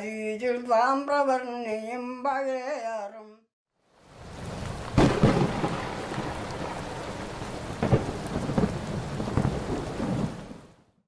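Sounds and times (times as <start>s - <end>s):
rain falling steadily: 3.8s - 10.9s
thunder rumbles: 4.1s - 10.8s.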